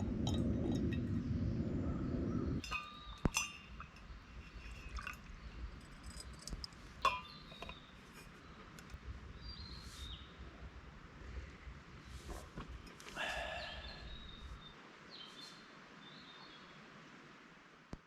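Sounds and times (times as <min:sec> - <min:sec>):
faint steady background noise: 0:00.0 - 0:18.0
light clinks and taps: 0:02.6 - 0:09.0.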